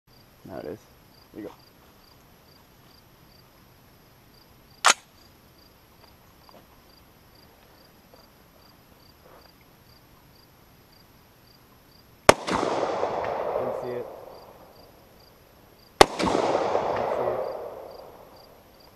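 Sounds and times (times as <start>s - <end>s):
crickets chirping: 0.1s - 18.9s
gunshot: 4.8s - 5.1s, 12.3s - 14.7s, 16.0s - 18.6s.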